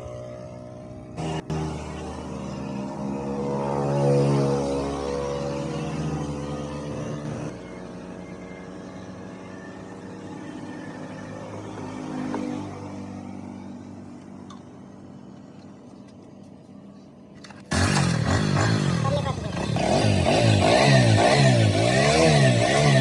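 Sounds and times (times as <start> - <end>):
motorcycle engine running: 17.4 - 23.0.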